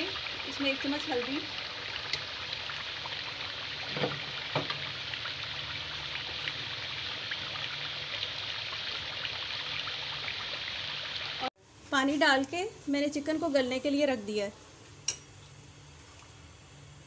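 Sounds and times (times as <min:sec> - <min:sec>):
chicken frying with sizzle: 0:00.0 - 0:12.1.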